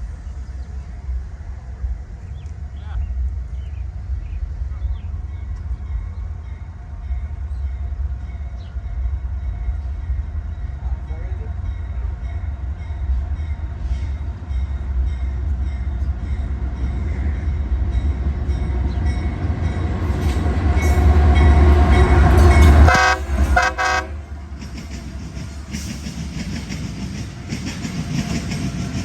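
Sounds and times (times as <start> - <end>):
diesel locomotive rumble: 0.0 - 29.0
train horn blasts: 20.8 - 24.4.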